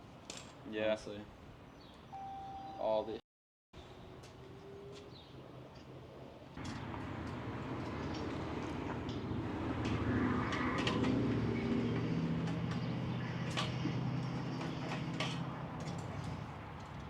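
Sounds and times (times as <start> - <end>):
metal grinding and scraping: 6.6 - 16.5.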